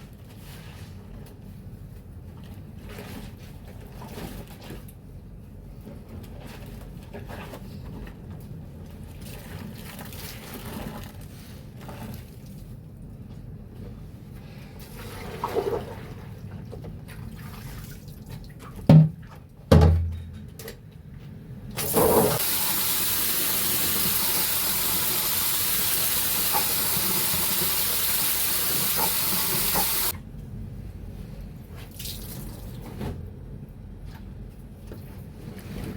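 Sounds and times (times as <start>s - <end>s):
wet laundry splashing: 17.0s - 19.3s
water running into a container: 21.8s - 30.1s.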